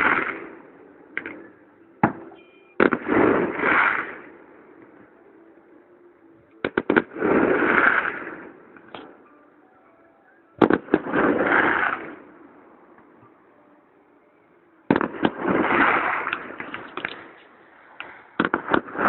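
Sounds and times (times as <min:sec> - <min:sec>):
fireworks bangs and crackling: 0:00.0 - 0:00.6, 0:02.0 - 0:04.4, 0:06.6 - 0:09.1, 0:10.6 - 0:12.3, 0:14.9 - 0:19.0.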